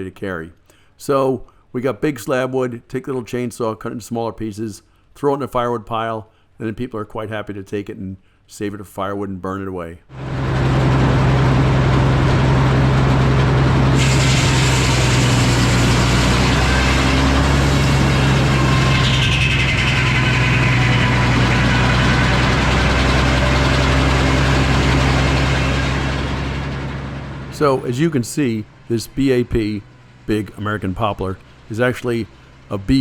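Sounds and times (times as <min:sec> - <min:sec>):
falling whine: 0:10.1 - 0:33.0
sawmill engine hum: 0:10.1 - 0:33.0
sawmill machine noise: 0:10.1 - 0:33.0.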